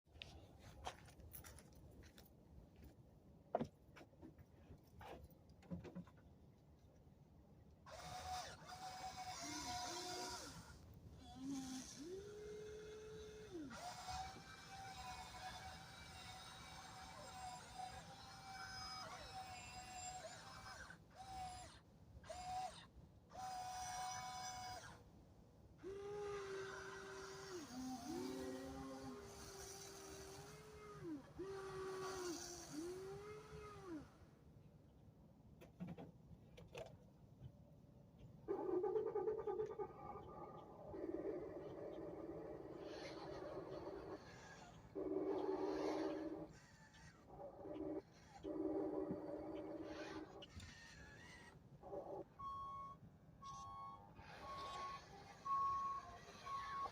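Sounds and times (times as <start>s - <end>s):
electric motors whining: 7.9s - 25.0s, 25.8s - 34.3s, 38.5s - 56.9s.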